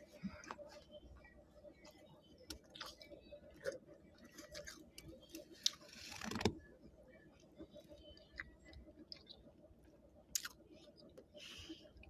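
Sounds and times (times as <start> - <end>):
person chewing frost: 10.3 - 10.6.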